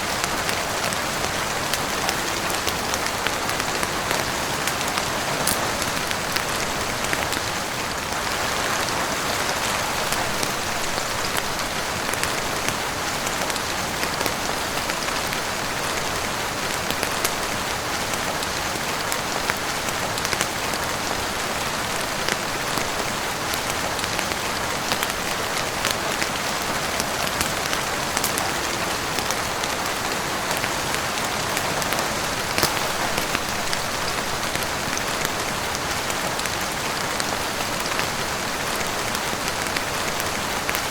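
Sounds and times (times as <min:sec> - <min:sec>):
heavy rain on roof and windows: 0:00.0 - 0:40.9.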